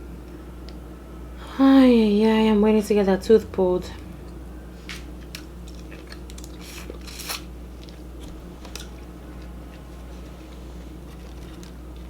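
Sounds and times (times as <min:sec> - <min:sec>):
chewing and biting: 0:04.9 - 0:12.0.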